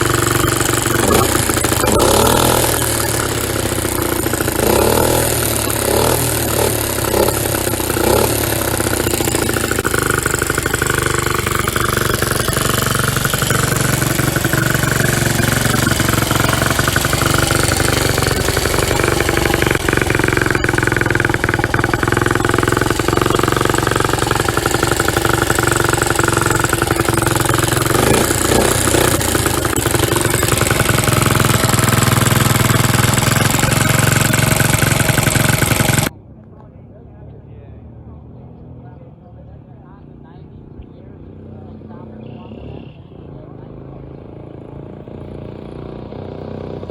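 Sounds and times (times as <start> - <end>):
small motorcycle engine running: 0.0 - 36.2, 37.8 - 46.9.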